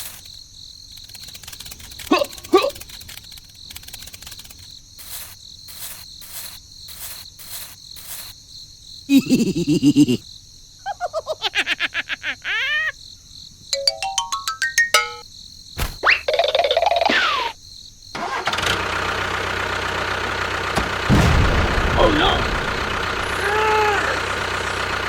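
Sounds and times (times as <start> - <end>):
crickets chirping: 0.0 - 13.6, 17.6 - 18.1.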